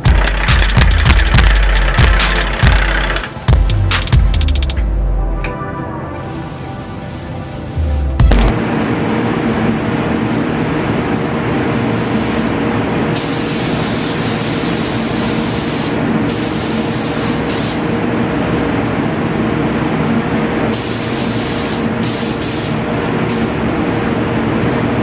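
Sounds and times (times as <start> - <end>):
paint spray gun hissing: 0.0 - 4.2, 13.2 - 17.9, 20.8 - 22.8
steady hum: 0.0 - 25.0.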